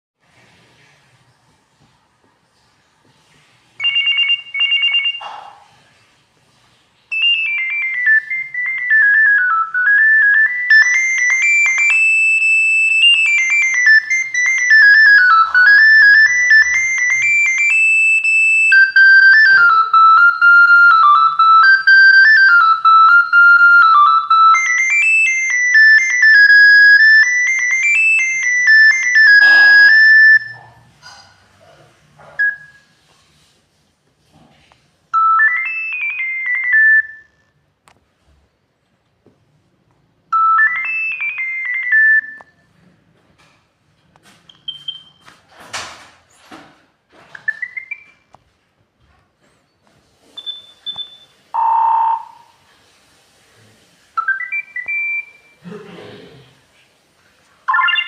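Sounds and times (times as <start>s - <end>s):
monophonic ringtone melody: 3.8s - 5.3s, 7.1s - 30.7s, 32.4s - 32.8s, 35.2s - 37.6s, 40.3s - 42.6s, 47.4s - 48.2s, 50.4s - 52.6s, 54.2s - 55.6s, 57.7s - 58.0s
short electronic beeps: 29.0s - 30.6s, 44.5s - 45.2s, 47.4s - 48.2s, 50.4s - 52.5s, 54.2s - 55.6s, 57.7s - 58.0s.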